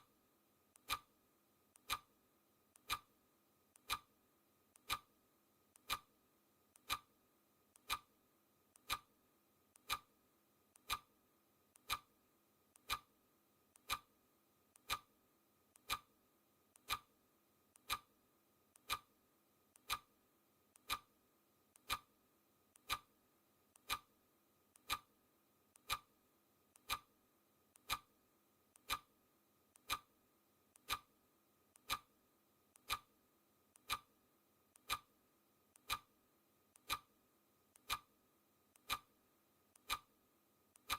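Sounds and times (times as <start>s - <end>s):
clock ticking: 0.8s - 1.2s, 1.8s - 2.2s, 2.8s - 3.2s, 3.8s - 4.1s, 4.8s - 5.1s, 5.8s - 6.1s, 6.7s - 7.2s, 7.8s - 8.2s, 8.8s - 9.2s, 9.8s - 10.2s, 10.8s - 11.2s, 11.8s - 12.2s, 12.8s - 13.1s, 13.8s - 14.2s, 14.8s - 15.1s, 15.8s - 16.2s, 16.8s - 17.1s, 17.8s - 18.2s, 18.8s - 19.2s, 19.8s - 20.2s, 20.8s - 21.2s, 21.8s - 22.2s, 22.8s - 24.2s, 24.8s - 25.2s, 25.8s - 26.2s, 26.8s - 27.2s, 27.8s - 28.2s, 28.8s - 29.2s, 29.8s - 30.2s, 30.8s - 31.2s, 31.8s - 32.2s, 32.8s - 33.2s, 33.8s - 34.2s, 34.8s - 35.2s, 35.8s - 36.2s, 36.8s - 38.2s, 38.8s - 39.2s, 39.8s - 40.2s.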